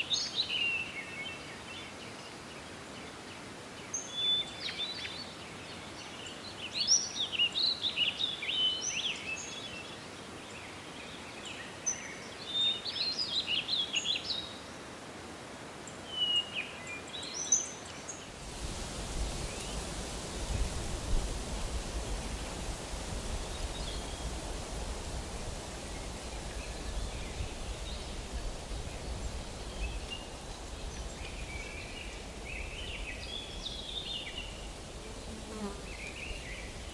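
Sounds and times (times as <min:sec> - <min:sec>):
steady rushing noise: 0:18.3 - 0:35.0
bird chirping song: 0:25.9 - 0:36.9.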